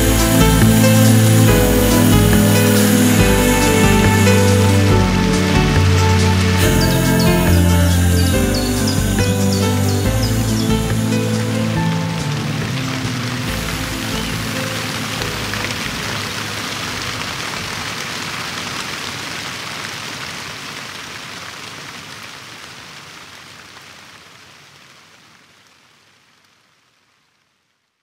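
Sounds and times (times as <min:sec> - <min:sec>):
soft music notes: 0:00.0 - 0:17.3
steady rain hiss: 0:00.0 - 0:28.0.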